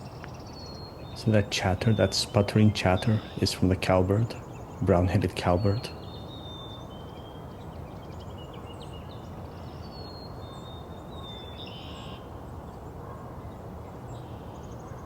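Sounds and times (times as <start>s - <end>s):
birds whistling: 0.0s - 7.6s.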